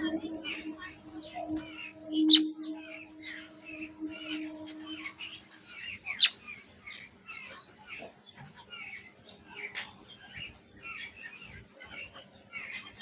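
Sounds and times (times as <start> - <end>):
steady low hum: 0.0 - 6.2
birds chirping: 0.0 - 13.0.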